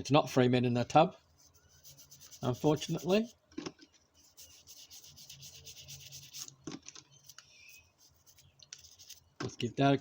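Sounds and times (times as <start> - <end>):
toothbrush scrubbing in water: 1.8 - 3.3.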